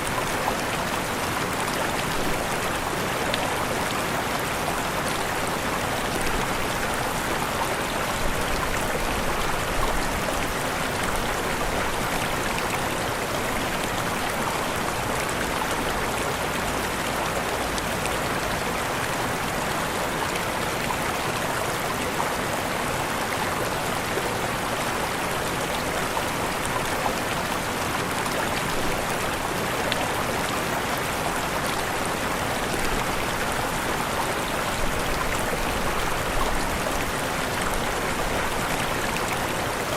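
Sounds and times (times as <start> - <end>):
waterfall rushing: 23.4 - 39.9.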